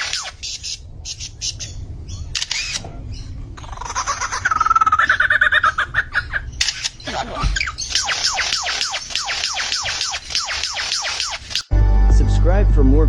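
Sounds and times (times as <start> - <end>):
bird trilling fast: 0.0 - 11.7
bird clicks: 2.4 - 2.8, 6.6 - 7.1, 7.9 - 11.7.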